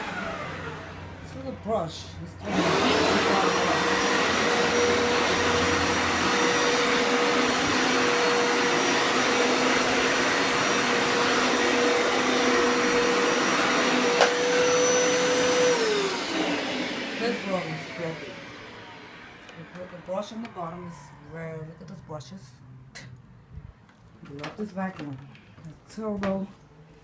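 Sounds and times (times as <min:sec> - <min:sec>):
carpet cleaner motor whining: 0:00.0 - 0:22.0
suction rush: 0:02.4 - 0:21.5.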